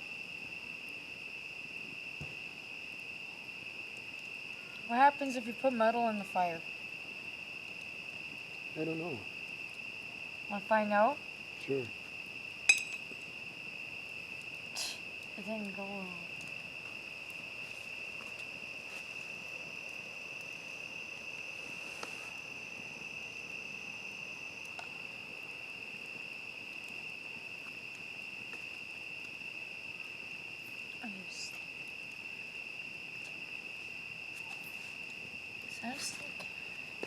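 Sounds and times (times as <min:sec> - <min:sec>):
crickets chirping: 0:00.0 - 0:37.0
high insect trill: 0:00.0 - 0:37.0.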